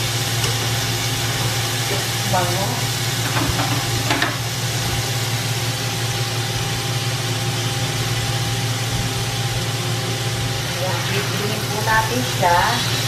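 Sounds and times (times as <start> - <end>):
chicken frying sizzle: 0.0 - 13.0.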